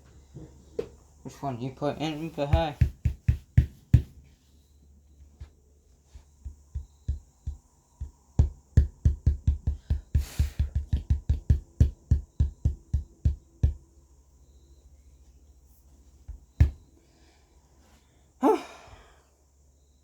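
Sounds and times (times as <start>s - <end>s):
knocking on wooden cabinet: 2.4s - 4.2s, 6.5s - 13.8s, 16.6s - 16.8s.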